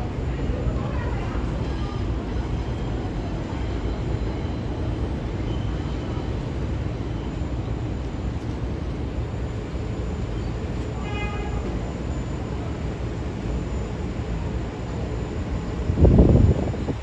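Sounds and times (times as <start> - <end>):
subway train rumbling: 0.0 - 17.0.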